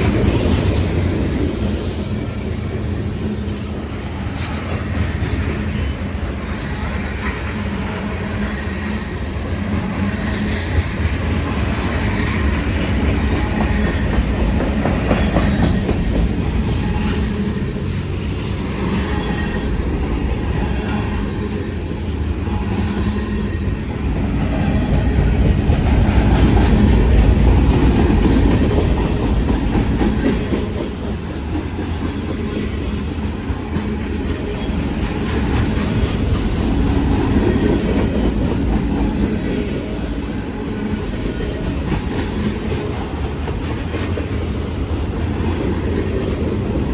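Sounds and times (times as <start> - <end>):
train wheels clattering over rails: 0.0 - 46.9
high wheel squeal: 15.2 - 17.8.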